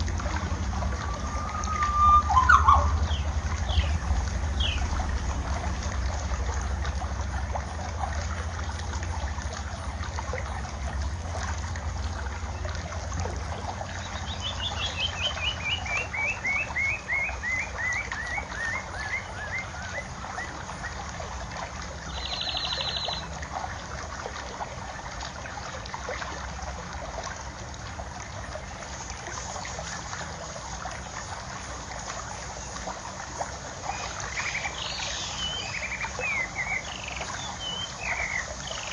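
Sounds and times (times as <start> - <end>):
water trickling: 0.0 - 38.9
bird chirping: 1.1 - 4.0, 22.2 - 23.2.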